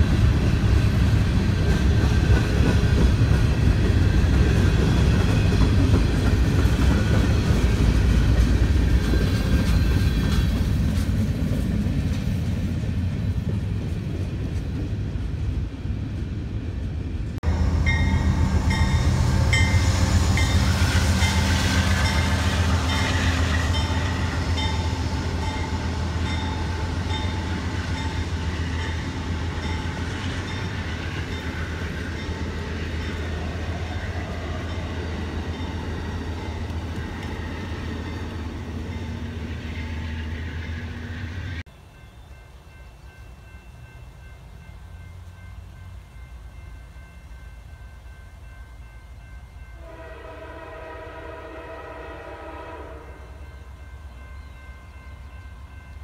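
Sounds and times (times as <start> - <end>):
train wheels clicking over rail joints: 0.0 - 15.0
train rumbling past: 0.0 - 56.0.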